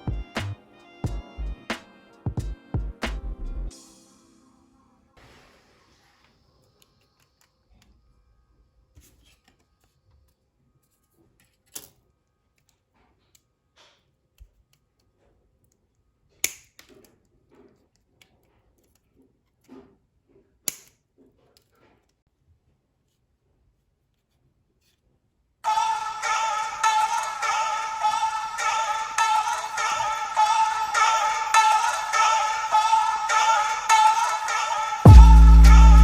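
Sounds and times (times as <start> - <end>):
small plastic parts clicking: 11.4 - 19.7, 20.6 - 22.2.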